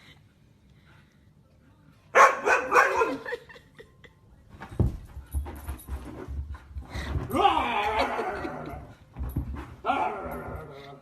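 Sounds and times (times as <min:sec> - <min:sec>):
dog barking: 0:02.2 - 0:03.2.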